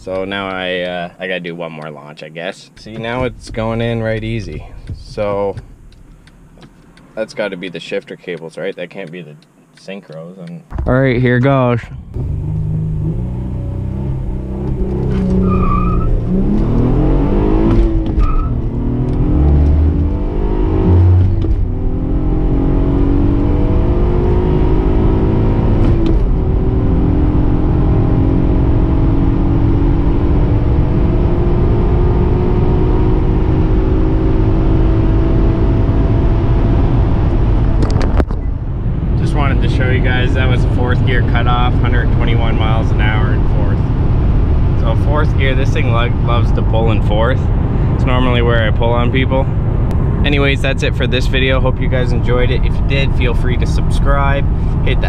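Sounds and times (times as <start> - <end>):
car engine revving at full throttle: 11.9 - 55.0.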